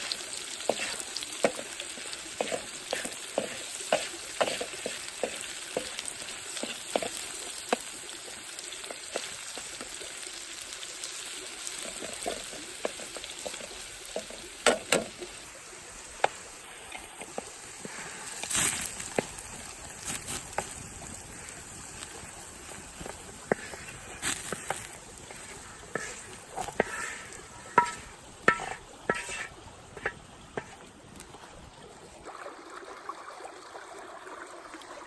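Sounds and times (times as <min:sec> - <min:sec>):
potatoes sizzling in hot oil: 0:00.0 - 0:31.5.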